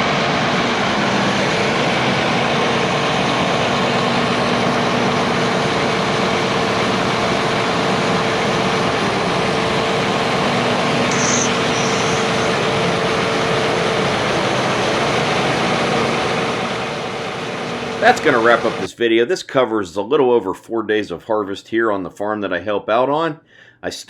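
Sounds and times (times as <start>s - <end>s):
harvest machinery engine droning: 0.0s - 18.9s.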